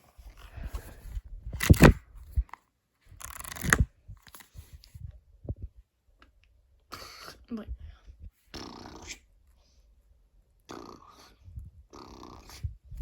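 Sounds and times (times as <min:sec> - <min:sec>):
person imitating raspy bursts: 0:08.5 - 0:09.2.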